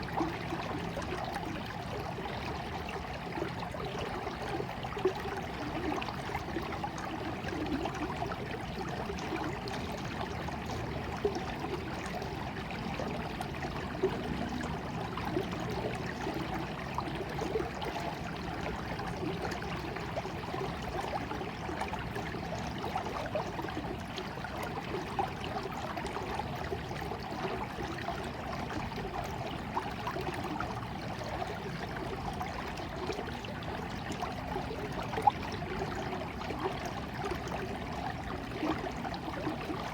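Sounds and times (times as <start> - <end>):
small water splashes: 0.0 - 39.9
stream water flowing: 0.0 - 39.9.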